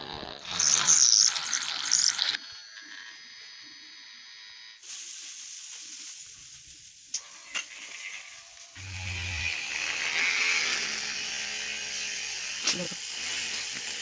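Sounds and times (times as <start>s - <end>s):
hiss: 4.8s - 8.7s
drill motor whining: 7.2s - 14.0s.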